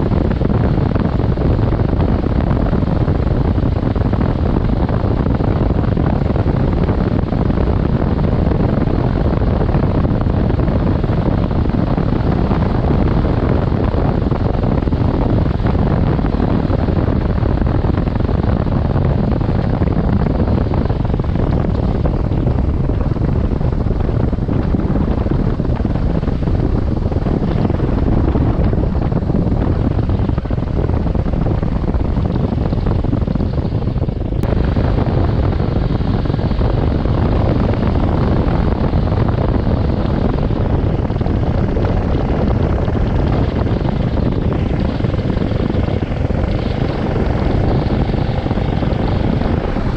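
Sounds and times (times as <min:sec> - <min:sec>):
wind buffeting microphone: 0:00.0 - 0:49.9
motorcycle engine: 0:43.3 - 0:49.9
road noise: 0:43.9 - 0:49.9.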